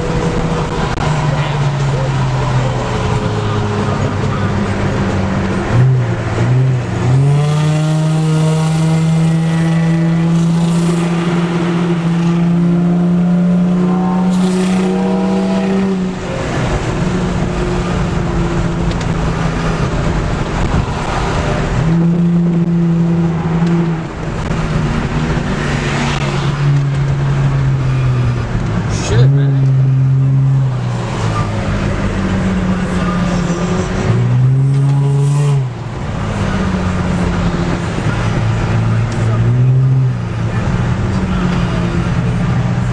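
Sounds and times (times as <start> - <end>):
car engine at high revs: 0.0 - 42.9
car engines revving: 0.0 - 42.9.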